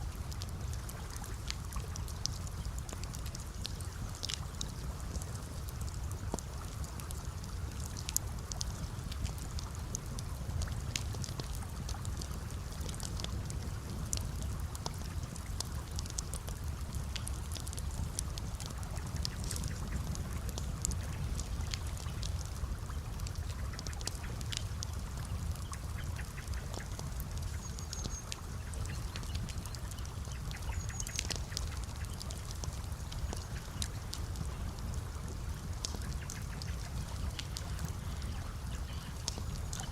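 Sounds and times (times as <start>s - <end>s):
campfire crackling and popping: 0.0s - 39.9s
water trickling: 0.1s - 39.9s.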